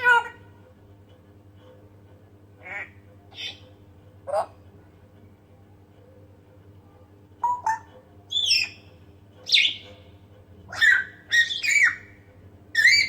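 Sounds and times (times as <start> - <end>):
parrot whistling: 7.4 - 8.8, 9.5 - 9.8, 10.7 - 12.2, 12.8 - 13.0.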